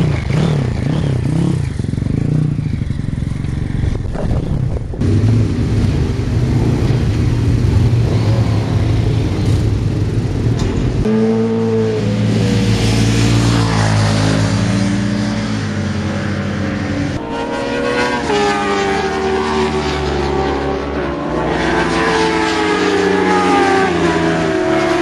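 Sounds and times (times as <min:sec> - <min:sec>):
motorcycle engine revving: 0:00.0 - 0:25.0
wind noise: 0:03.0 - 0:11.1.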